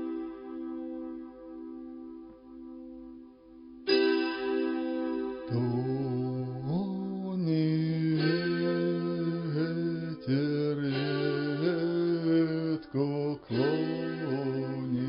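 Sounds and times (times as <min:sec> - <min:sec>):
plucked string accompaniment: 0:00.0 - 0:15.0
man singing folk melody: 0:05.5 - 0:15.0.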